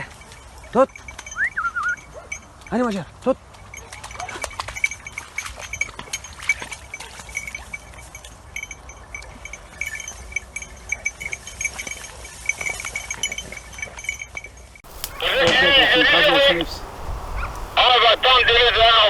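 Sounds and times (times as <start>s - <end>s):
small bell jingling: 0.0s - 2.7s, 3.5s - 18.8s
clicks and rustles: 14.9s - 19.0s.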